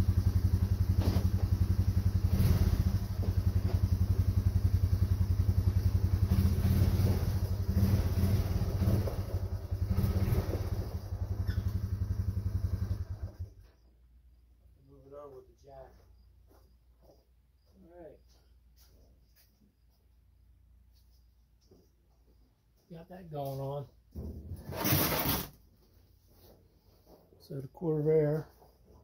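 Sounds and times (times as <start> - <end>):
vehicle engine idling: 0.0 - 19.4.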